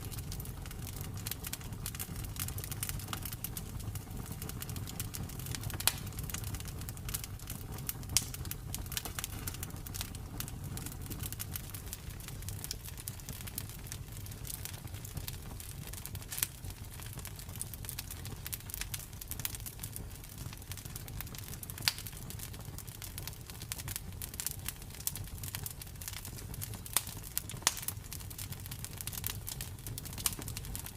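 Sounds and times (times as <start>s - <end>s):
campfire crackling: 0.0s - 30.9s
loud fire pops: 0.0s - 30.9s
low fire rumble: 0.0s - 30.9s.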